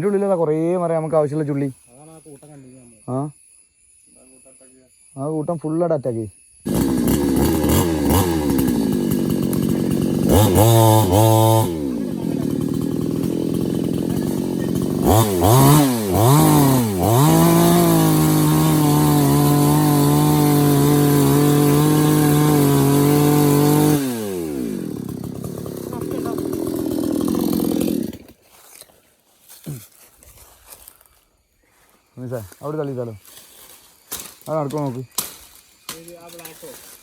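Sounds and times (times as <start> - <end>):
chainsaw engine revving: 6.6 - 28.4.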